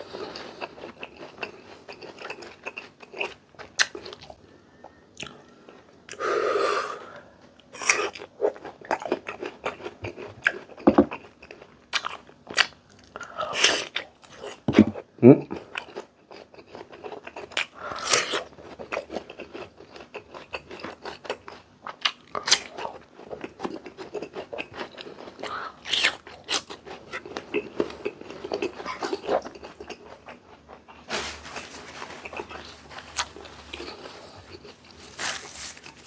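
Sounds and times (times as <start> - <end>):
chewing crunchy raw fruit: 0.1 - 6.2, 7.6 - 36.0.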